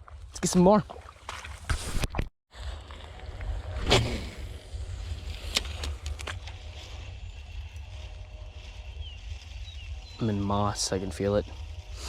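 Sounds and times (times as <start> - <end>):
wind rumbling on microphone: 1.8 - 12.0
whoosh: 3.6 - 5.8.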